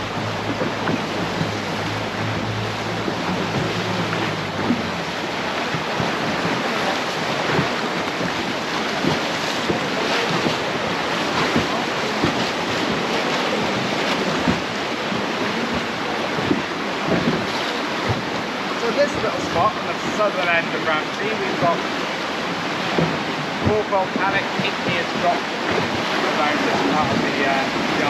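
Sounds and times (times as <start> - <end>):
sea waves: 0.0 - 28.0
wind buffeting microphone: 0.0 - 28.0.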